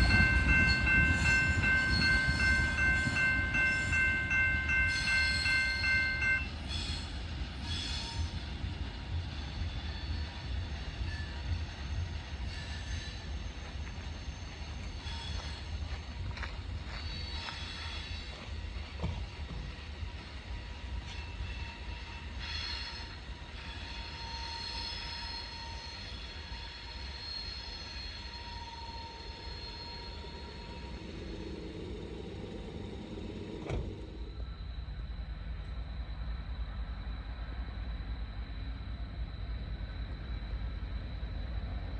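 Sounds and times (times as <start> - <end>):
crossing bell ringing rapidly: 0.0 - 6.6
freight train rumbling past: 0.0 - 41.9
train wheel squeals: 0.0 - 41.9
high wheel squeal: 17.0 - 18.4, 20.8 - 35.1.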